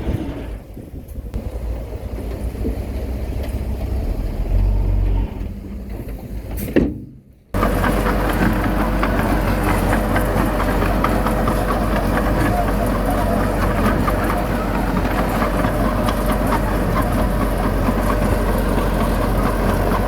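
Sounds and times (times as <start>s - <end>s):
heavy machinery diesel engine: 0.0s - 20.0s.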